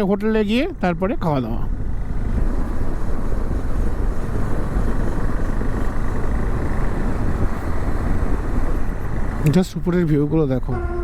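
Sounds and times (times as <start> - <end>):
road noise: 0.0 - 11.0
wind noise on microphone: 1.7 - 9.6.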